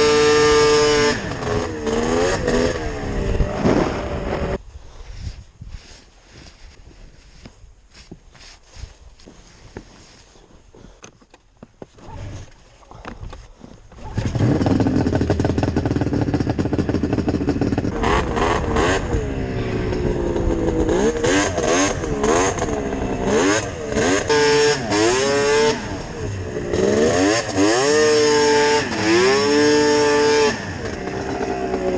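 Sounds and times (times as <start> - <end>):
snowmobile engine revving: 0.0 - 4.6, 14.0 - 31.9.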